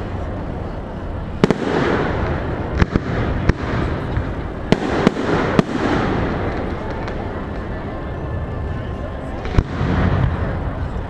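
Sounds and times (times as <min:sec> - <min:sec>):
fireworks bursting with sharp bangs: 0:00.0 - 0:08.6, 0:09.3 - 0:11.0
steady background noise: 0:00.0 - 0:11.0.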